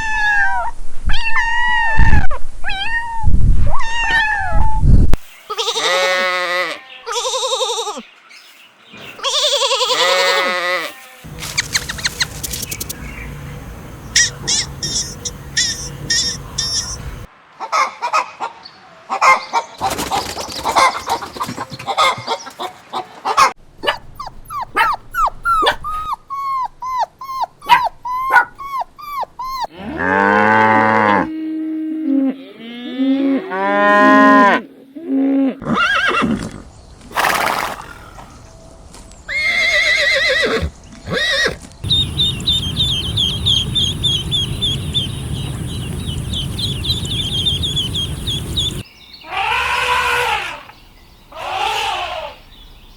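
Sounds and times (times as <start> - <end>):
farm animal calls: 9.0 - 13.4, 14.1 - 19.9, 20.6 - 30.2, 39.3 - 52.5
rapid high chirping: 11.4 - 13.4, 14.0 - 17.3, 24.2 - 29.7, 41.8 - 48.9
steady low rumble: 11.4 - 17.3, 41.8 - 48.8.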